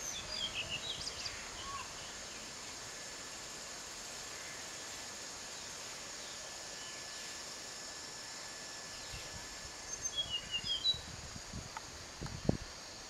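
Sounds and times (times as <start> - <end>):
insects humming: 0.0 - 13.0
small bird chirping: 9.9 - 11.1.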